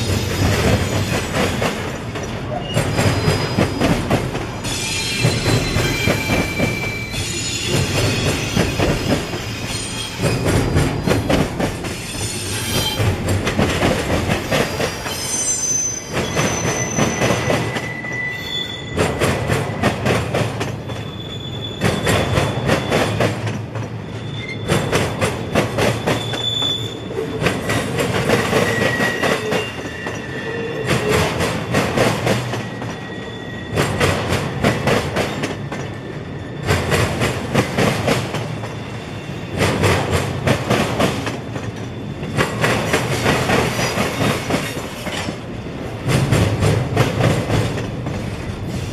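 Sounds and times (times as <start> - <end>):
freight train wheels clattering: 0.0 - 18.1, 18.7 - 48.9
metal wheels squealing on rails: 0.0 - 40.0, 41.0 - 45.5.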